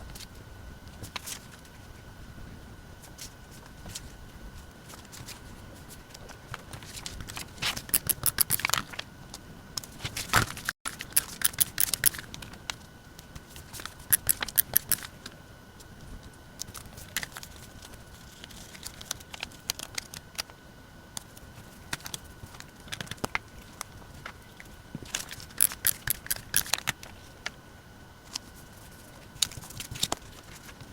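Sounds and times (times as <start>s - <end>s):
faint steady hum: 0.0s - 30.9s
paper clicks and rustles: 0.1s - 2.0s, 3.0s - 15.1s, 16.1s - 20.5s, 28.2s - 30.9s.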